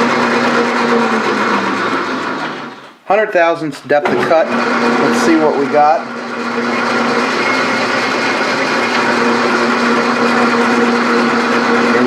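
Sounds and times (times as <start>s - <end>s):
metal lathe running: 0.0s - 2.9s, 4.0s - 12.0s.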